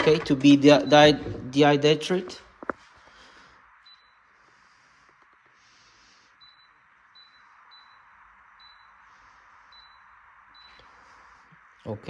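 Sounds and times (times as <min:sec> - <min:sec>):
oven control panel beeps: 0:00.0 - 0:01.5, 0:06.4 - 0:09.0, 0:09.7 - 0:10.8
faint steady hiss: 0:00.0 - 0:12.0.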